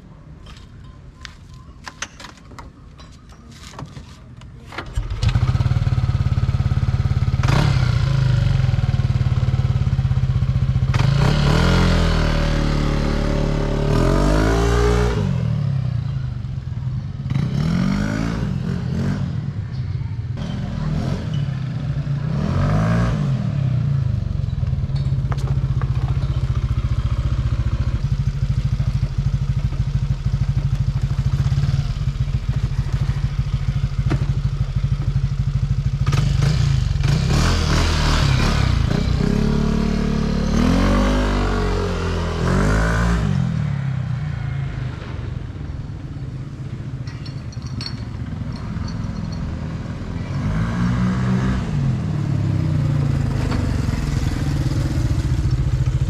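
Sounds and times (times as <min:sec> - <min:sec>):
scooter engine idling and revving: 0:04.8 - 0:56.0.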